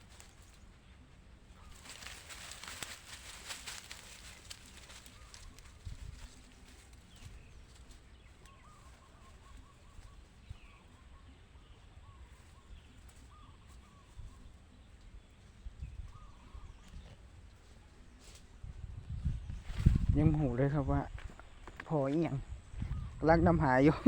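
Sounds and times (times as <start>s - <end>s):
faint bird calls: 0.0s - 18.6s
low wind rumble: 1.4s - 8.6s, 18.4s - 24.0s.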